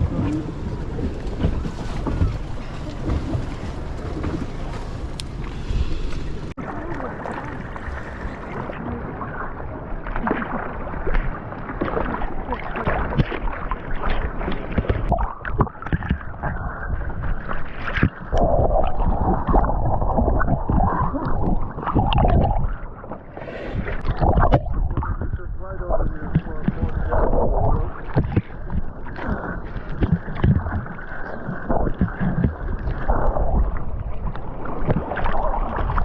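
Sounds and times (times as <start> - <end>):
muffled water sloshing and gurgling: 0.0 - 36.0.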